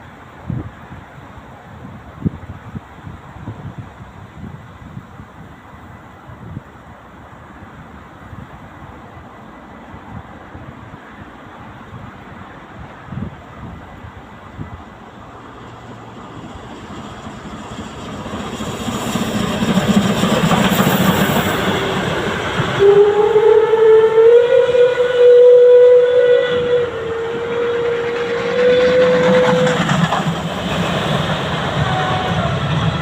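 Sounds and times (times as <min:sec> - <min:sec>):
steam locomotive running: 0:11.0 - 0:33.0
steam whistle blast: 0:21.7 - 0:29.9, 0:31.8 - 0:33.0.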